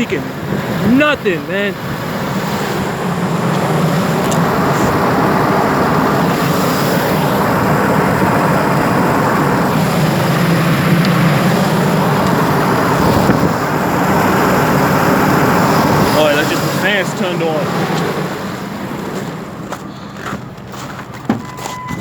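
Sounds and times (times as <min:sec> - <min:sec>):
cooling fans rushing air: 0:00.0 - 0:21.5
truck engine humming: 0:00.0 - 0:22.0.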